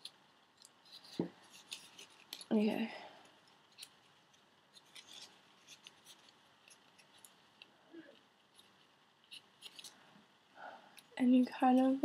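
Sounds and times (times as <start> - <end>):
paper crinkling: 0.0 - 2.7, 3.3 - 10.1.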